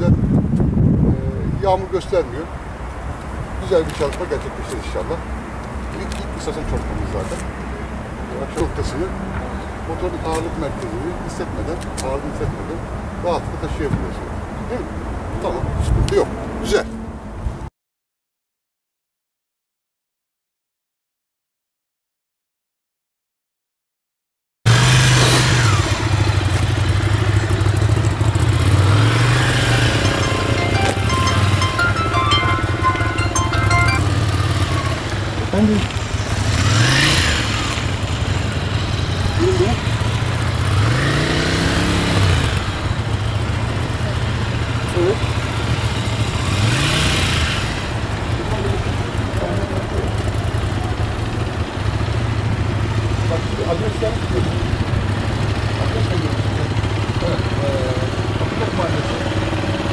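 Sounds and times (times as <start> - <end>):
motorcycle engine idling: 47.9 - 59.8.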